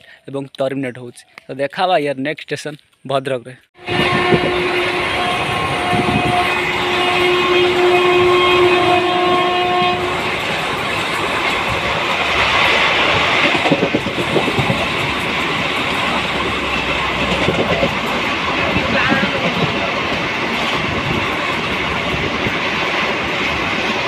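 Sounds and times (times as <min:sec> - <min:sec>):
train horn: 0:03.8 - 0:10.6
train wheels clattering over rail joints: 0:10.1 - 0:24.0.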